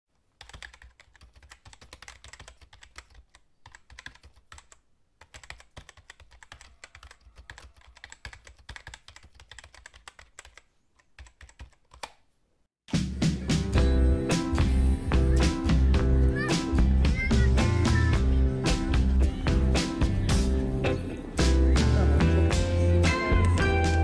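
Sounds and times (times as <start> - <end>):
typing on a computer keyboard: 0.4 - 12.2.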